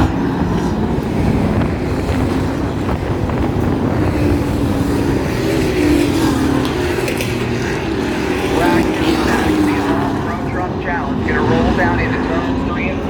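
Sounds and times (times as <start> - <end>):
truck engines droning past: 0.0 - 13.0.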